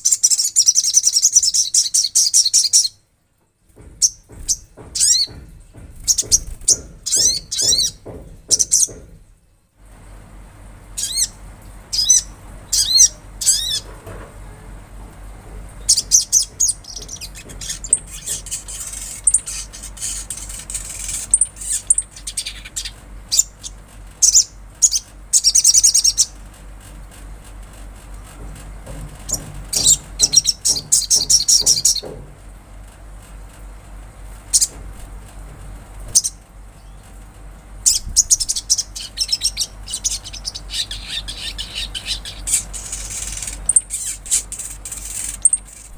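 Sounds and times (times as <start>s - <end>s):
bird chirping trills: 0.0s - 3.0s, 6.0s - 9.0s, 11.0s - 13.9s, 15.8s - 26.4s, 29.2s - 32.2s, 34.5s - 34.8s, 36.1s - 37.2s, 37.8s - 45.9s
steady low hum: 3.1s - 45.9s.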